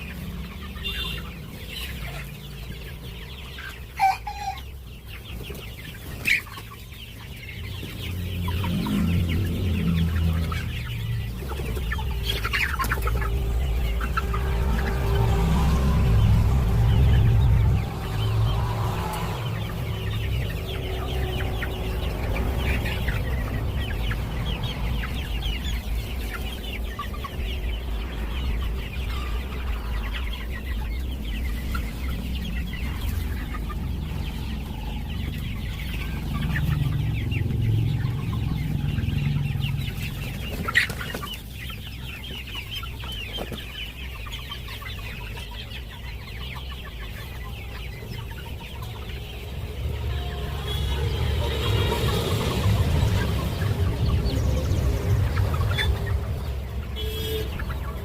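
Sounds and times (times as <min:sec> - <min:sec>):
chickens clucking and peeping: 0:00.0 - 0:58.0
low steady rumble: 0:08.0 - 0:40.5.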